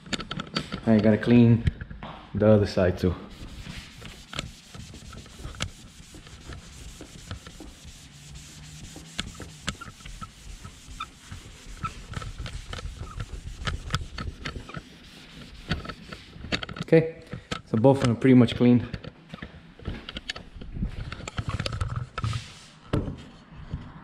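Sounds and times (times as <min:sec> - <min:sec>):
rag rubbing plastic trim: 0:03.3 - 0:16.9.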